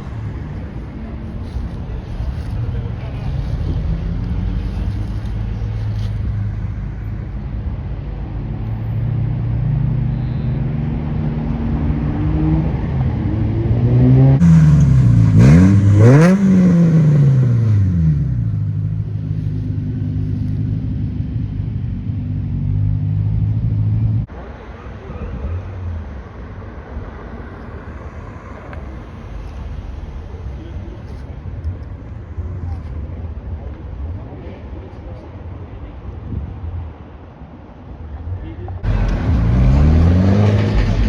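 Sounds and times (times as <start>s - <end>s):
car engine revving: 8.6s - 24.3s, 38.8s - 41.0s.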